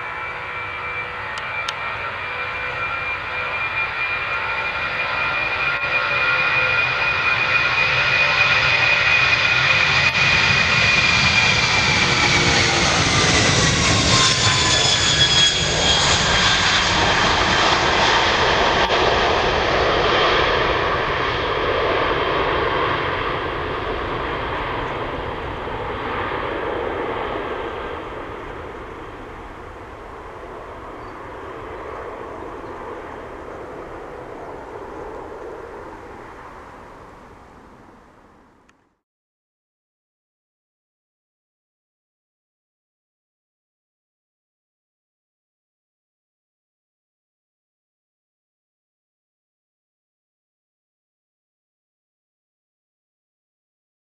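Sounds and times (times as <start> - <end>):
jet engines at takeoff power: 0.0 - 39.0.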